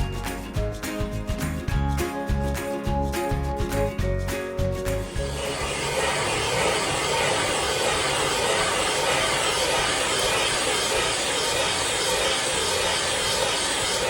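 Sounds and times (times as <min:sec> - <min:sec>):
hissing machine noise: 0:05.0 - 0:14.0.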